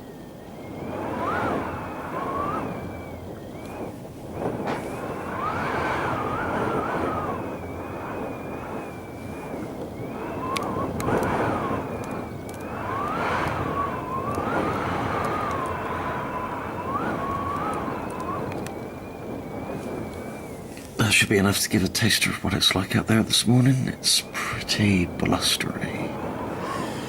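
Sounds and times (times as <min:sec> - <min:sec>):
strong gusting wind: 0:00.0 - 0:27.0
wavering wind whistle: 0:00.0 - 0:27.0.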